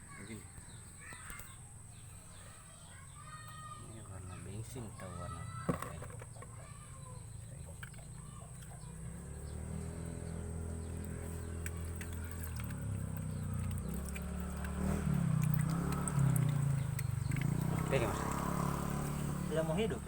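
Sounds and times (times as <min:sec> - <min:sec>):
motorcycle engine running: 0:04.4 - 0:20.0.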